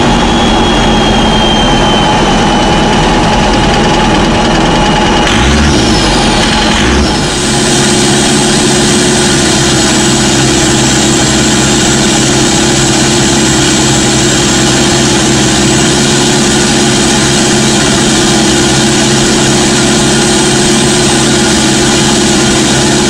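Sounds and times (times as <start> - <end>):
diesel engine cruising drone: 0.0 - 23.0.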